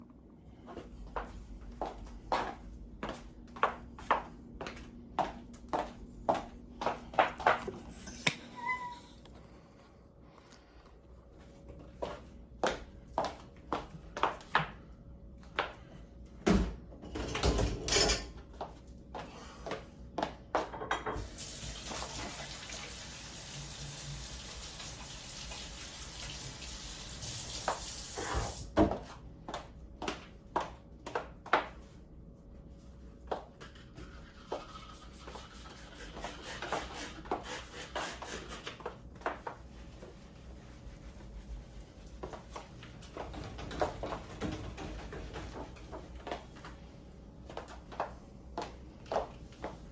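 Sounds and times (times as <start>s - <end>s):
dishes and cutlery clinking: 17.1s - 18.4s.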